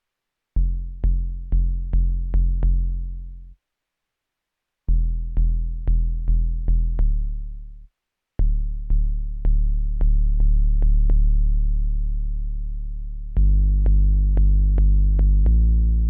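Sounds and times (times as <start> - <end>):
synthesizer kick bass notes: 8.4 - 16.0.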